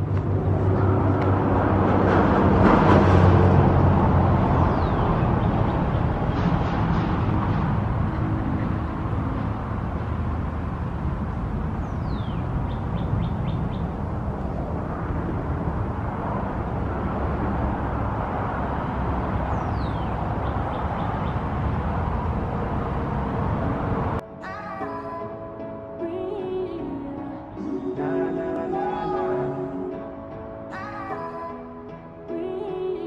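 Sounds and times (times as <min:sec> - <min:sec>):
steady rushing rumble: 0:00.0 - 0:24.2.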